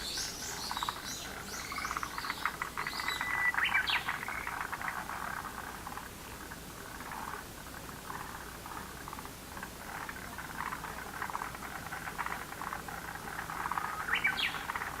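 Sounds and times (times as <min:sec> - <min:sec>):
frogs croaking: 0:00.0 - 0:15.0.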